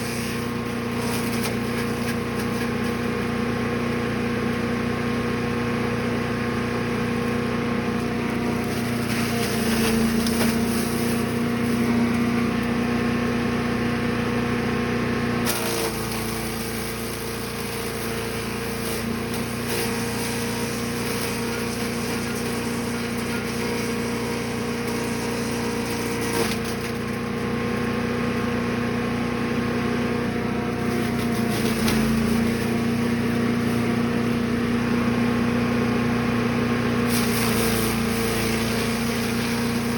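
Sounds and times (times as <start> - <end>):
wood crackling and splintering: 0.0 - 3.3, 8.0 - 12.8, 15.5 - 27.4, 30.6 - 34.6, 37.0 - 39.9
wood chipper engine running: 0.0 - 39.9.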